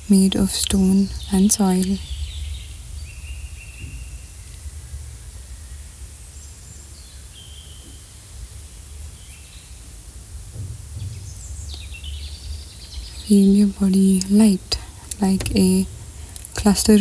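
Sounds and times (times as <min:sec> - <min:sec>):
steady low rumble: 0:10.8 - 0:17.0.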